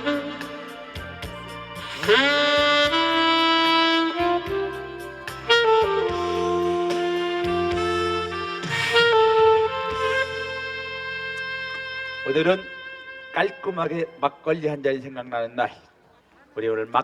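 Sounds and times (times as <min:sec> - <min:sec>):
backing track with drum beat: 0:00.0 - 0:13.3
saxophone playing held notes: 0:00.0 - 0:14.5.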